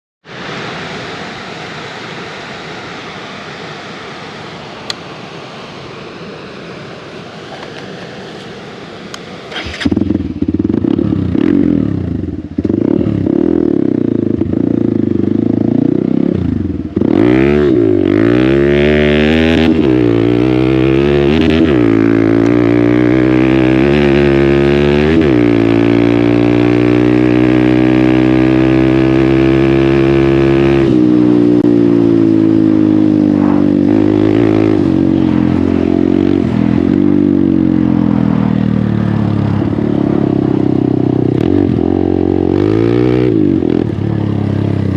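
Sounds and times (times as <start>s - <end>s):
motorcycle engine revving: 9.4s - 44.9s.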